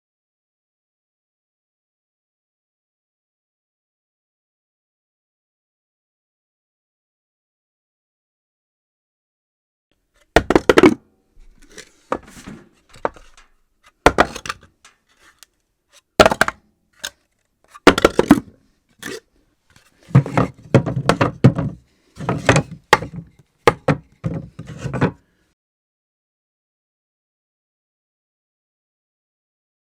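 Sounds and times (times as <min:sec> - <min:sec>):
objects dropped on hard floor: 0:10.4 - 0:14.8, 0:20.0 - 0:25.2
objects clattering bounces: 0:10.4 - 0:15.4, 0:17.7 - 0:19.2, 0:19.8 - 0:25.2.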